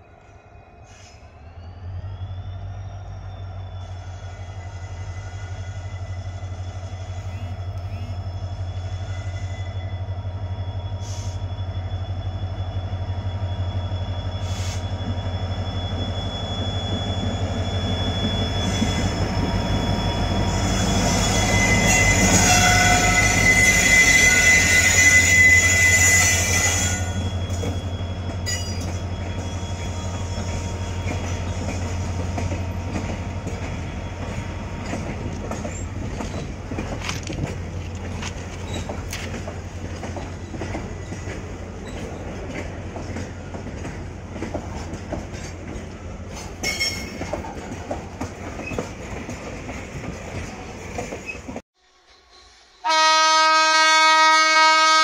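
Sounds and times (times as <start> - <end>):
diesel locomotive engine drone: 0.0 - 51.6
high wheel squeal: 0.6 - 36.7.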